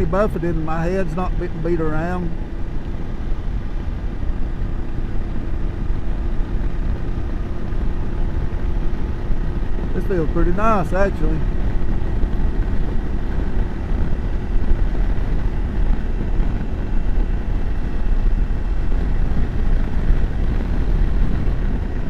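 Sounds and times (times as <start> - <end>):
motorcycle engine running: 0.0 - 22.0
wind rushing on microphone: 0.0 - 22.0.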